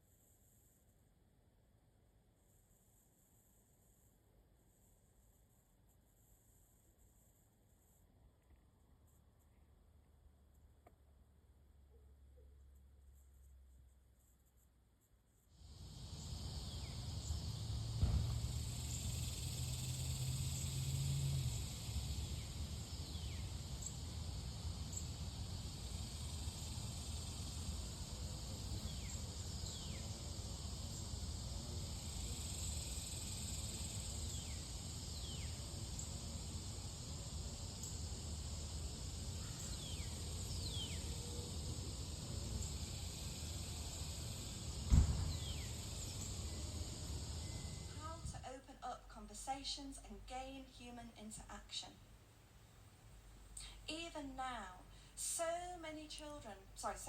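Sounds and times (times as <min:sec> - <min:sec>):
high insect-like drone: 0:15.6 - 0:48.1
low hum: 0:15.8 - 0:38.0
birds giving falling whistled calls: 0:45.2 - 0:46.6.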